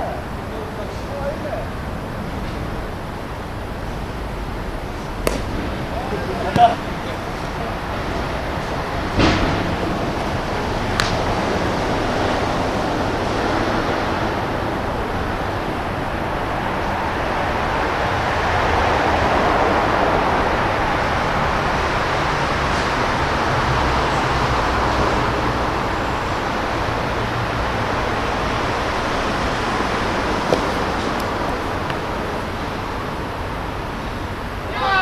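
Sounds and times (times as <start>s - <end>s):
steady rushing noise: 0.0s - 35.0s
sharp knock: 5.3s - 5.8s.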